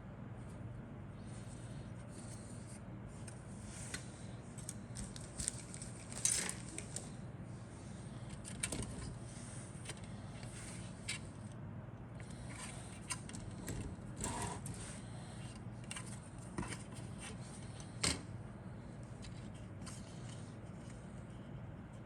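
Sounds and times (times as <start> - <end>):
low steady hum: 0.0 - 22.0
plastic bags rustling: 4.6 - 7.2.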